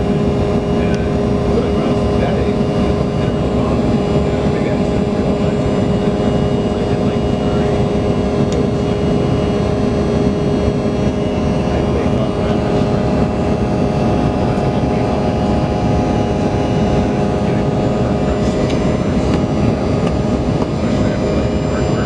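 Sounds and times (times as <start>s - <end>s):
airliner cabin jet rush: 0.0s - 22.0s
jet engine whine: 0.0s - 22.0s.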